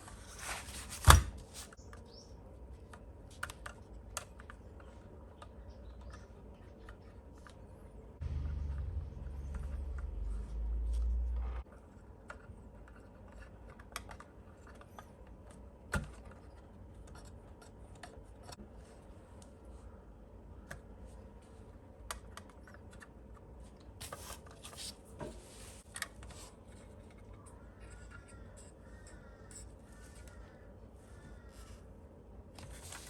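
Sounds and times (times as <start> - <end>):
scraping and rustling: 0.0 - 1.8.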